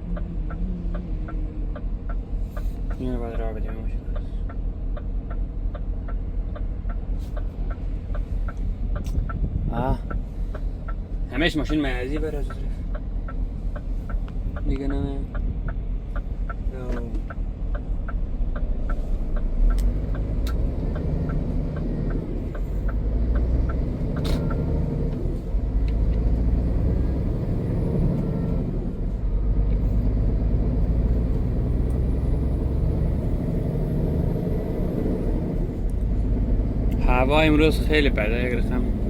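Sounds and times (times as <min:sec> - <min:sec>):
regular ticking: 0:00.0 - 0:27.4
truck diesel engine running: 0:00.0 - 0:39.0.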